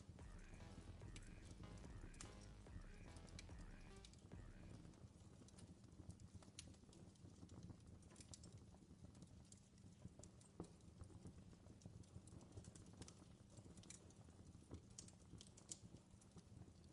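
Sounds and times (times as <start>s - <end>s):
low steady rumble: 0.0s - 4.9s.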